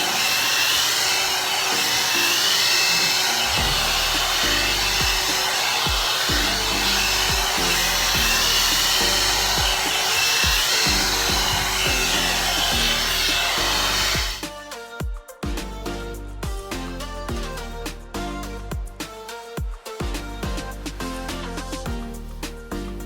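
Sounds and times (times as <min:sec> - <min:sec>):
hot air brush blowing: 0:00.0 - 0:14.5
background music with bass beat: 0:03.4 - 0:23.0.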